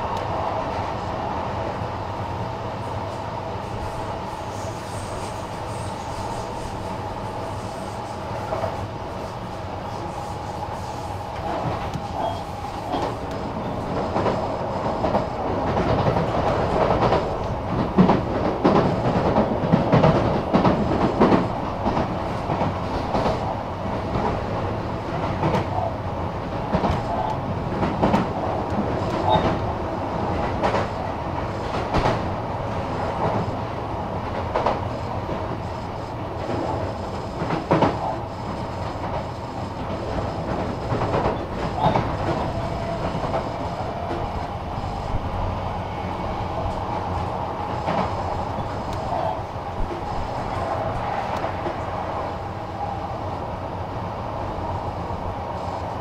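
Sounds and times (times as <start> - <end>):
low train rumble: 0.0 - 56.0.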